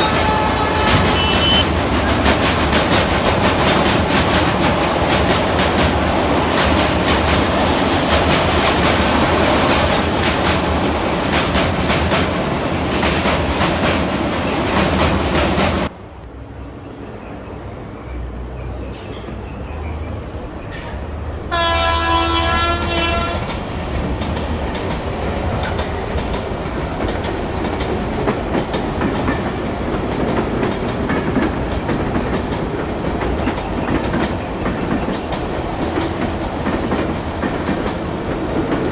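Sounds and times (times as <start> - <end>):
model train horn: 0.0 - 1.8, 21.5 - 23.5
wheels clattering over rail joints: 18.8 - 38.9.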